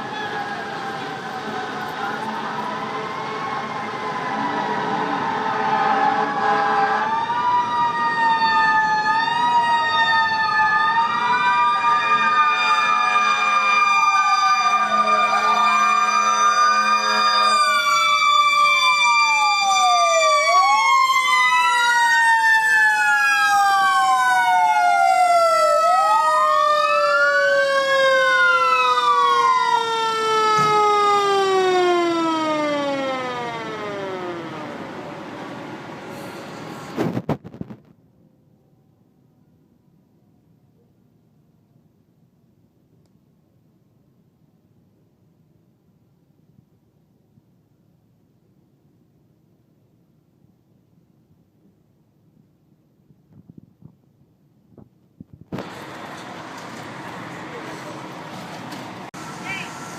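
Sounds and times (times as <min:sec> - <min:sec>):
fire engine sirens wailing: 0:00.0 - 0:37.0, 0:55.6 - 0:59.9.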